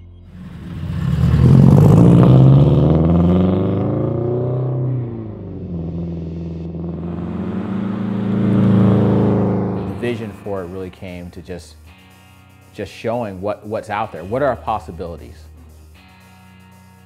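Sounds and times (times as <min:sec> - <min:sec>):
car engine accelerating hard: 0:00.3 - 0:11.0.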